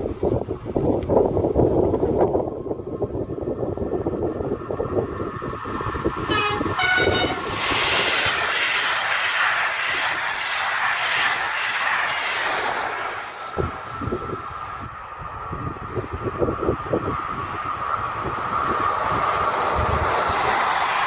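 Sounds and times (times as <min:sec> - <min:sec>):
train wheels rushing on rail: 0:00.0 - 0:21.0
train horn blasts: 0:06.3 - 0:07.8.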